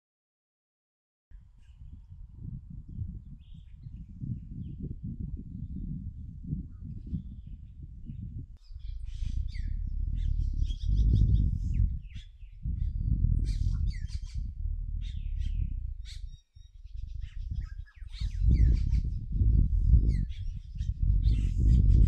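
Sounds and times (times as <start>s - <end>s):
loud low rumble in gusts: 1.3s - 22.0s
forest birds chirping: 8.6s - 21.7s.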